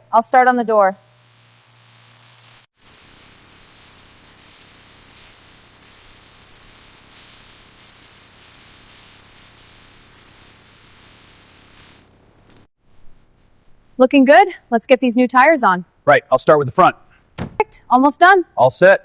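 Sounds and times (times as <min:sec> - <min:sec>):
power sander hissing: 0:00.4 - 0:12.1.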